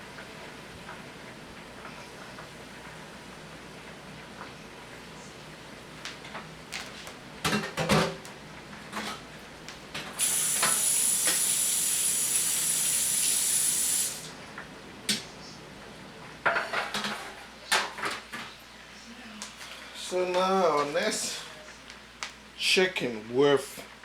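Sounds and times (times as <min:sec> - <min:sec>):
utensils and pans clattering: 0:07.5 - 0:08.2, 0:16.5 - 0:18.4.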